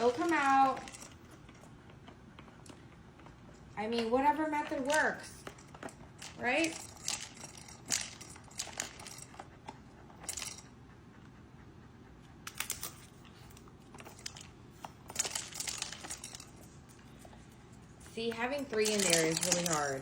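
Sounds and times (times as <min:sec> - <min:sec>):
plastic toy clicking and rattling: 0:00.0 - 0:01.6, 0:04.0 - 0:09.5, 0:12.5 - 0:17.3, 0:18.0 - 0:20.0.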